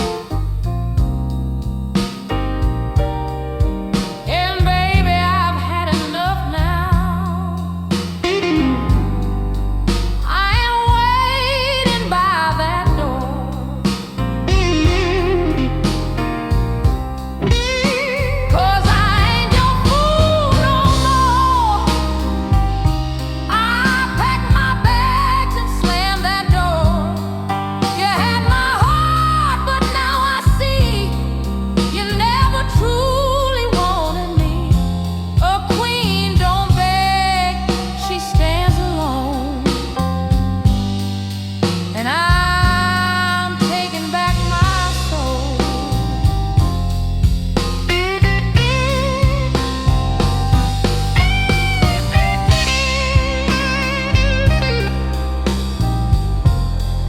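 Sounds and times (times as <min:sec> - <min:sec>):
bass and beat: 0:00.0 - 0:57.0
blues guitar lead: 0:00.0 - 0:57.0
lead guitar with bent notes: 0:08.2 - 0:10.3, 0:14.5 - 0:25.7, 0:47.5 - 0:57.0.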